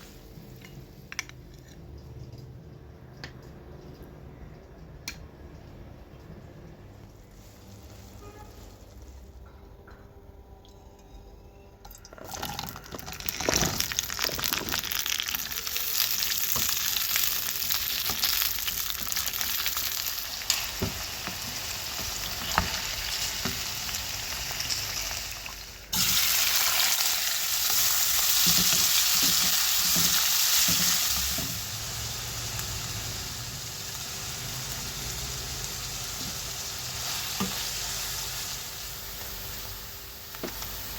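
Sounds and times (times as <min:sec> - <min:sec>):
vegetables sizzling in oil: 0:12.9 - 0:40.9.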